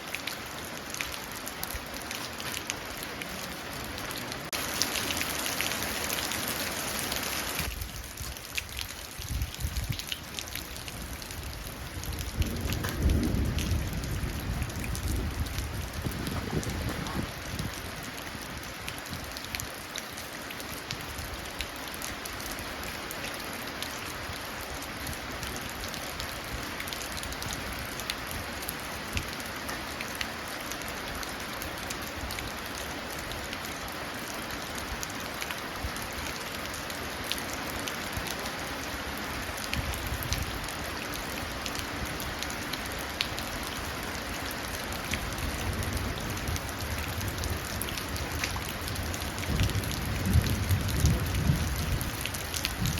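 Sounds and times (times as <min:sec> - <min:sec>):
rain falling onto a puddle: 0:00.0 - 0:52.9.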